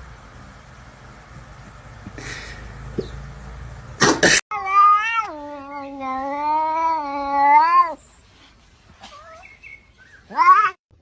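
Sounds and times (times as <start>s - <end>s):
cat yowling: 4.5s - 8.0s, 10.2s - 10.8s.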